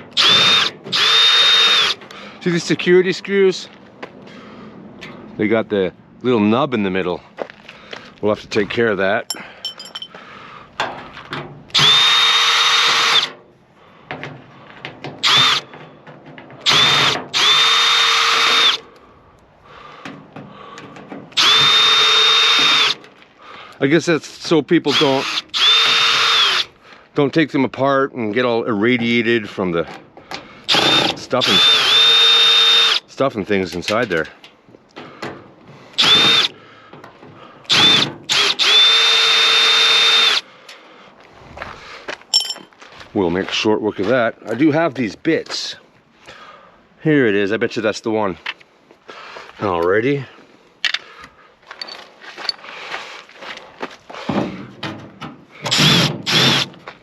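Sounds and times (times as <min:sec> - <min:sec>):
power drill whining: 0:00.1 - 0:02.0, 0:11.7 - 0:13.3, 0:15.2 - 0:15.7, 0:16.6 - 0:18.8, 0:21.4 - 0:23.0, 0:24.9 - 0:26.7, 0:30.7 - 0:33.0, 0:36.0 - 0:36.5, 0:37.7 - 0:40.4, 0:55.6 - 0:56.7.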